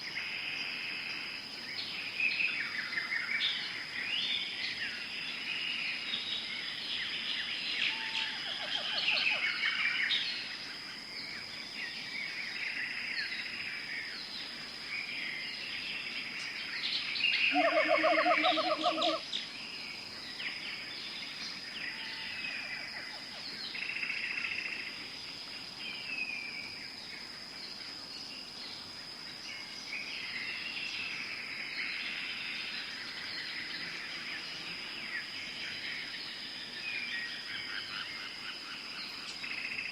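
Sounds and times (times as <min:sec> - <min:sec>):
high-pitched insect tone: 0:00.0 - 0:39.9
birds chirping and calling: 0:16.4 - 0:19.4
rapidly pulsing call: 0:17.5 - 0:19.2.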